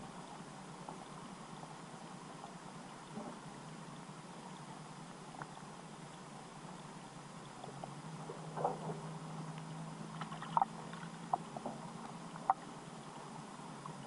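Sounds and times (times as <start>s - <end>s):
faint steady underwater hiss: 0.0s - 14.0s
low hum: 0.0s - 14.0s
sharp underwater clicks: 10.1s - 12.7s.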